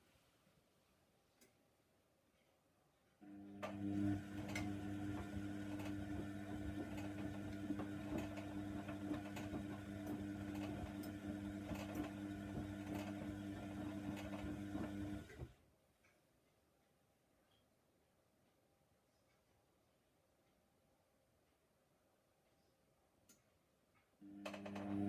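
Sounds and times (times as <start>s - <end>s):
washer dryer humming: 3.2s - 15.6s, 24.2s - 25.0s.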